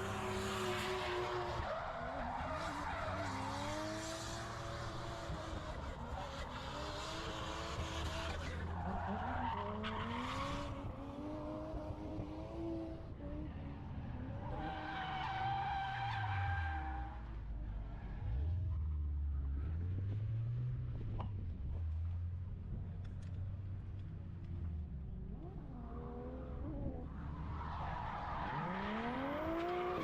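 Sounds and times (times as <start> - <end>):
car engine revving: 0.0 - 14.9, 24.5 - 30.0.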